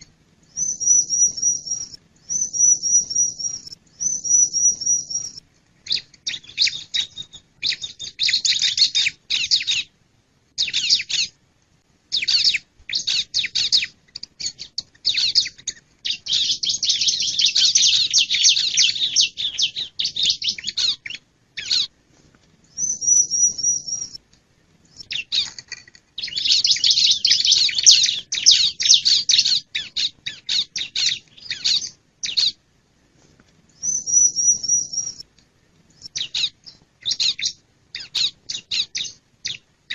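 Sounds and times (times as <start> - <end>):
high bird trill: 0.0 - 9.9, 10.6 - 11.4, 12.1 - 21.9, 22.7 - 24.2, 24.9 - 32.6, 33.8 - 35.2, 36.0 - 39.9
bird chattering: 0.6 - 9.9, 10.6 - 11.3, 12.1 - 21.9, 22.8 - 24.2, 24.9 - 32.6, 33.8 - 35.2, 36.0 - 39.9.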